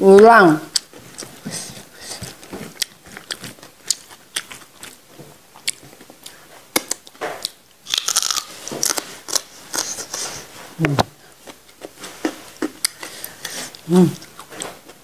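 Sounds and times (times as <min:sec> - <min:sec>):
wet chewing: 0:00.7 - 0:10.4, 0:11.4 - 0:15.0
vegetable crunching: 0:02.2 - 0:10.4.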